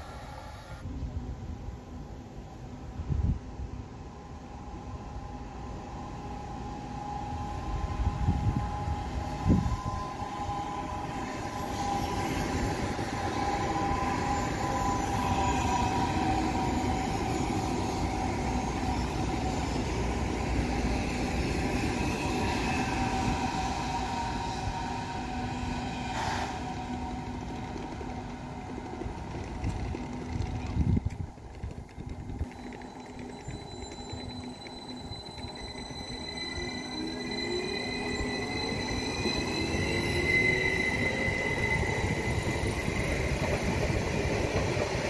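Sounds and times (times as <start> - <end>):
train wheels rumbling: 6.6 - 45.0
high whining tones: 32.2 - 45.0.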